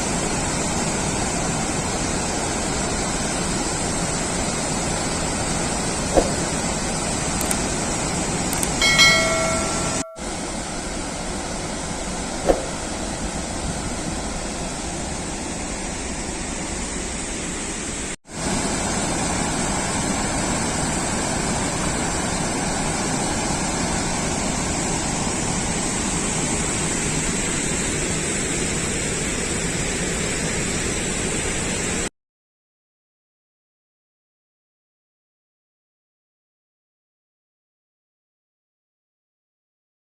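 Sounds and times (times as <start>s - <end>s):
water rushing from a spillway: 0.0s - 8.7s, 18.3s - 32.1s.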